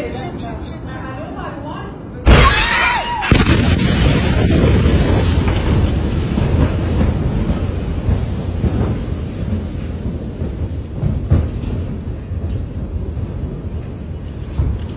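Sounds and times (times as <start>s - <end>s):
sharp cracks: 2.3s - 9.6s
deep explosion rumble: 2.3s - 14.9s.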